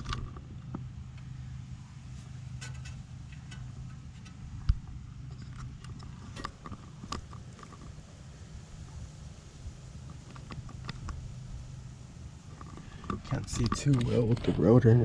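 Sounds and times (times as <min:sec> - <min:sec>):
small clicks and knocks: 0:00.0 - 0:01.4, 0:02.2 - 0:08.0, 0:10.0 - 0:11.2, 0:12.5 - 0:14.6
low hum: 0:00.0 - 0:15.0.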